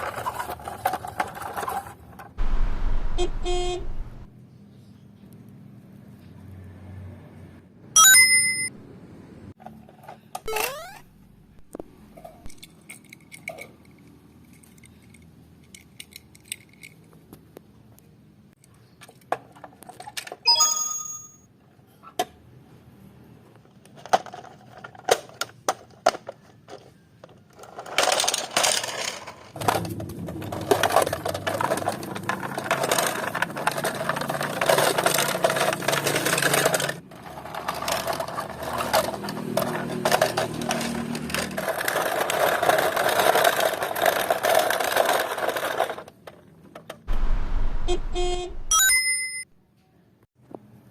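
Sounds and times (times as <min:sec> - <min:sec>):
toy cars clicking and clinking: 0:00.0 - 0:02.4, 0:12.2 - 0:17.4, 0:18.6 - 0:20.8, 0:23.6 - 0:47.1
short ringing tone: 0:08.0 - 0:08.7, 0:47.9 - 0:49.4
continuous rattling with low hum: 0:23.7 - 0:48.6.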